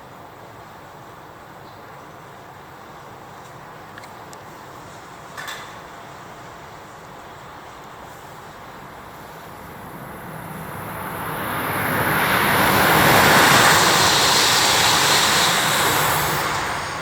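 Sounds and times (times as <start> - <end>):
high-speed train passing: 2.2 - 17.0.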